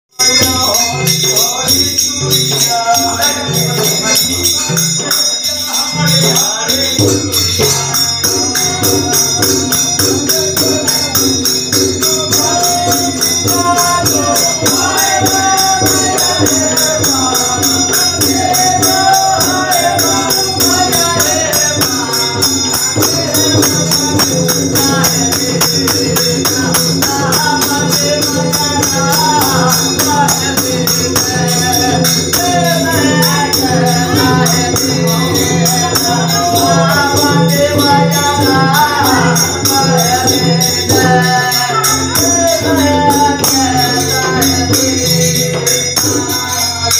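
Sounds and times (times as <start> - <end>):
person singing: 0.1 - 46.9
hand cymbals clashing: 0.2 - 46.9
hand drum: 6.1 - 46.9.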